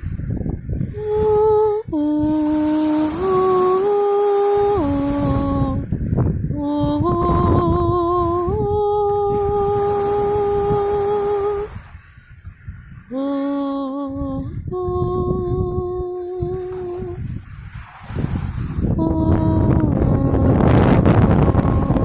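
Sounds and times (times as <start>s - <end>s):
woman humming sustained notes: 0.9s - 5.9s, 6.5s - 11.8s, 13.1s - 17.3s, 18.9s - 22.0s
steady low rumble: 4.7s - 17.8s, 18.4s - 22.0s.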